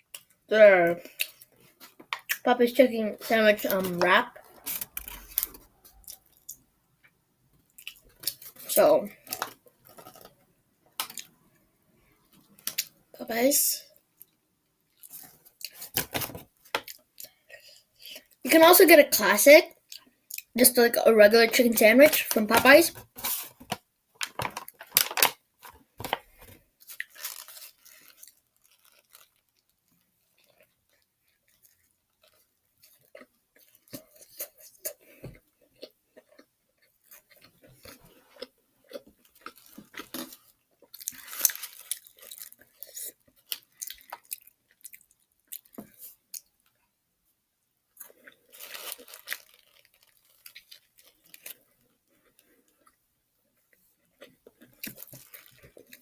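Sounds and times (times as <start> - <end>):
chewing crispy fried chicken: 13.9 - 18.4, 19.7 - 20.6, 25.6 - 47.0, 47.9 - 56.0.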